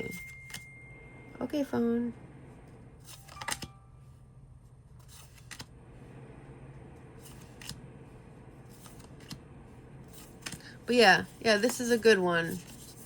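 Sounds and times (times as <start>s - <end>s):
faint steady hum: 0.0s - 13.0s
cards clicking and snapping: 3.1s - 3.8s, 5.1s - 5.7s.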